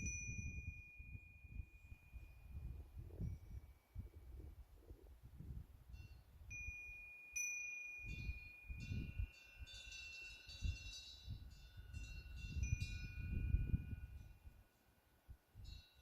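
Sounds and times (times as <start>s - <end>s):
wind bell ringing: 0.0s - 3.7s, 6.0s - 14.8s, 15.6s - 16.0s.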